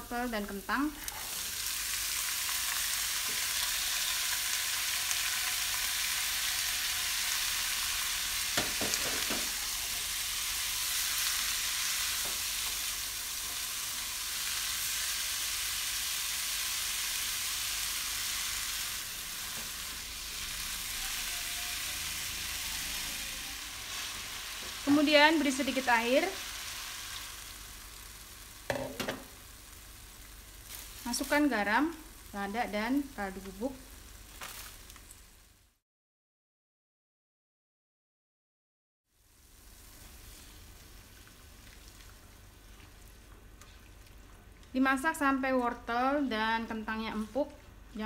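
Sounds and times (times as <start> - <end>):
vegetables sizzling in hot oil: 0.0 - 35.7, 39.1 - 43.2.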